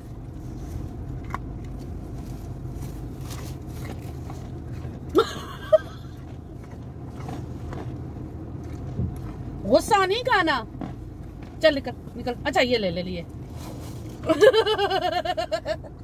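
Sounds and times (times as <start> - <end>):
animal chewing carrots: 0.0 - 9.9, 10.6 - 12.2
car engine idling: 0.0 - 16.0.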